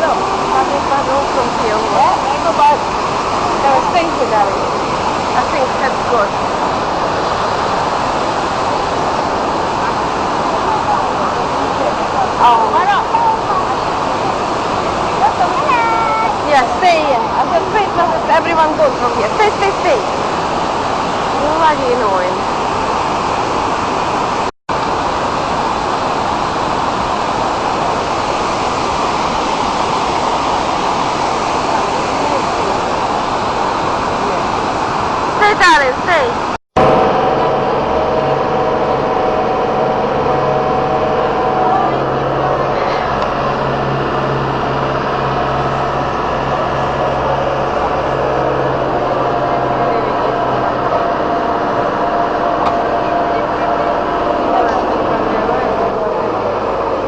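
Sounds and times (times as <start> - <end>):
waterfall rushing: 0.0 - 57.0
low steady hum: 36.8 - 57.0.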